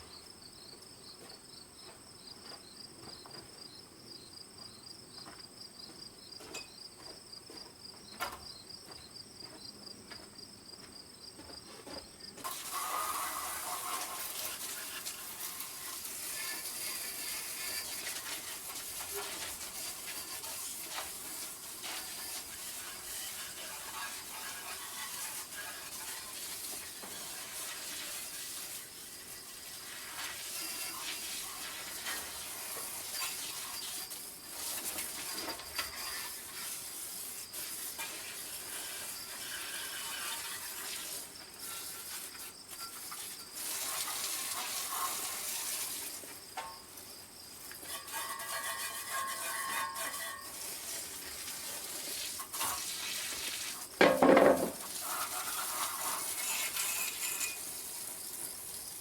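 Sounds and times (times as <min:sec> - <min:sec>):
insects chirping: 0:00.0 - 0:12.5, 0:31.7 - 0:45.4, 0:46.0 - 0:50.6, 0:56.4 - 0:59.0.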